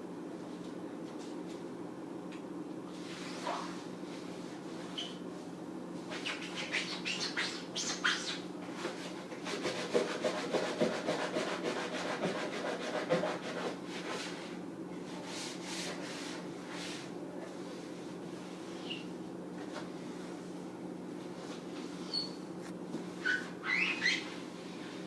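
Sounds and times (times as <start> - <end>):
steady low hum: 0.0 - 10.2, 10.9 - 25.0
sponge scrubbing: 8.9 - 14.4.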